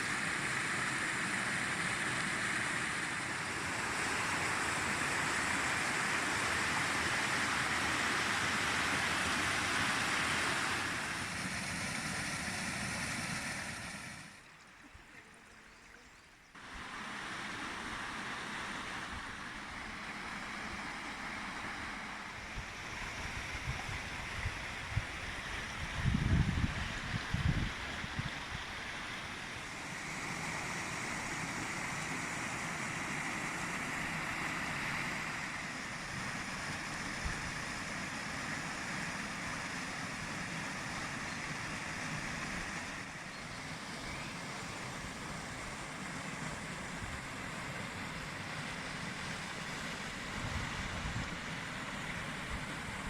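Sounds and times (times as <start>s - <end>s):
waterfall and river rushing: 0.0s - 14.4s, 16.6s - 26.1s, 26.8s - 53.0s.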